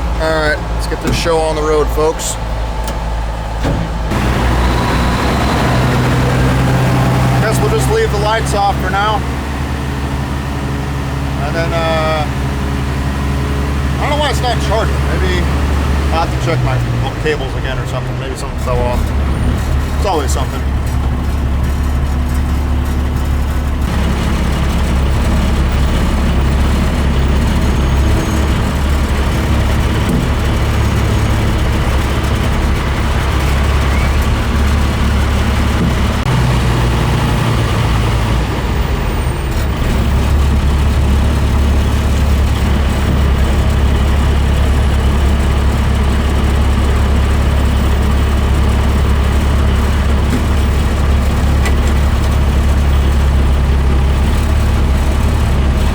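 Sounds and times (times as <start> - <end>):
truck engine droning: 0.0 - 55.9.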